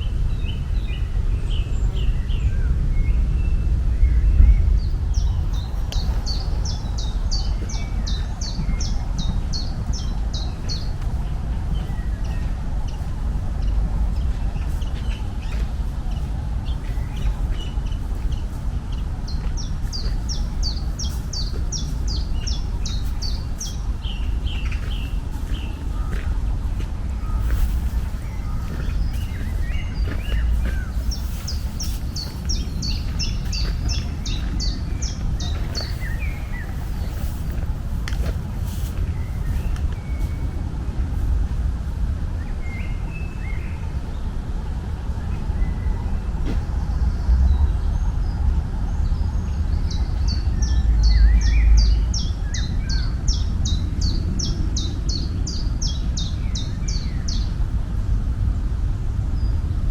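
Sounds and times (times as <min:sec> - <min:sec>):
birds chirping: 0:00.0 - 0:57.5
songbird singing: 0:00.0 - 0:57.6
low rumble: 0:00.0 - 0:59.9.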